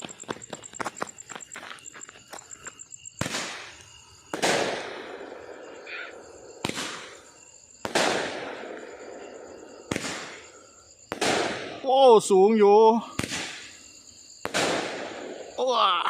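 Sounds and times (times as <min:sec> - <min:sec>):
fireworks bangs: 0:03.2 - 0:12.3, 0:13.1 - 0:13.8, 0:14.4 - 0:15.6.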